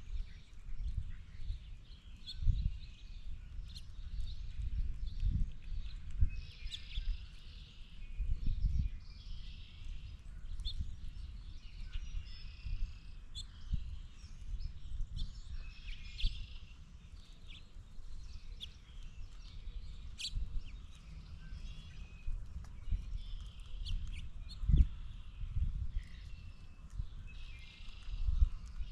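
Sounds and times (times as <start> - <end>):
wind on microphone: 0.0 - 28.9
birds chirping: 0.1 - 28.9.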